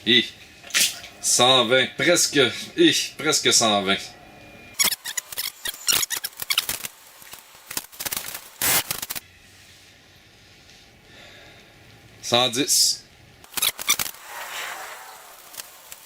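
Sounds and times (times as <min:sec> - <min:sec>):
short bursts of noise: 0:04.8 - 0:09.2, 0:13.5 - 0:16.0.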